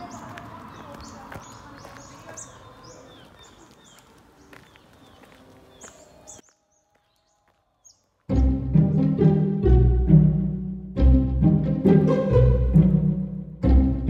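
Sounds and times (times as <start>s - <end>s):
small birds chirping: 0.0s - 9.4s
faint outdoor background noise: 0.0s - 9.5s.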